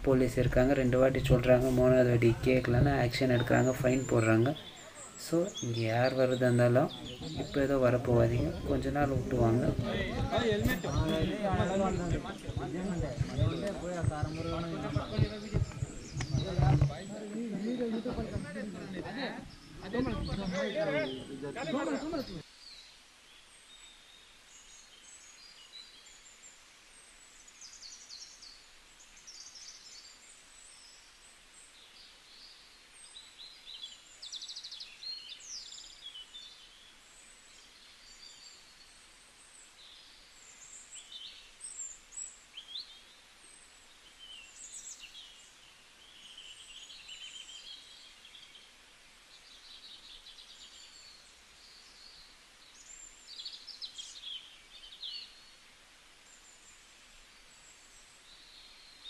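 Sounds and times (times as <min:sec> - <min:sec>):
faint outdoor hiss: 0:00.0 - 0:59.0
small birds chirping: 0:00.0 - 0:59.0.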